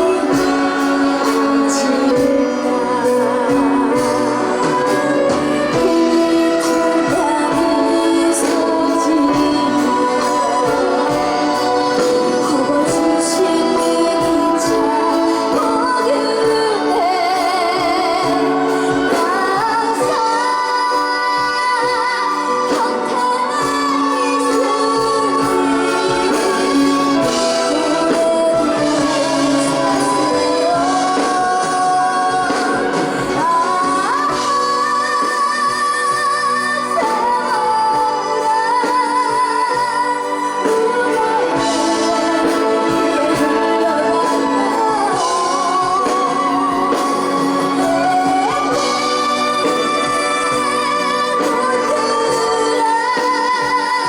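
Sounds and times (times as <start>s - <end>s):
instrumental accompaniment: 0.0s - 54.0s
young woman singing: 0.0s - 54.0s.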